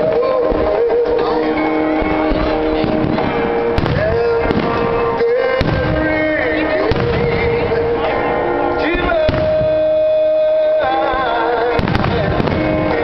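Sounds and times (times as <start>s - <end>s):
fireworks booming: 1.9s - 8.1s, 8.9s - 10.2s, 11.2s - 13.0s
sharp firework cracks: 2.8s - 4.9s, 5.6s - 6.2s, 11.8s - 13.0s.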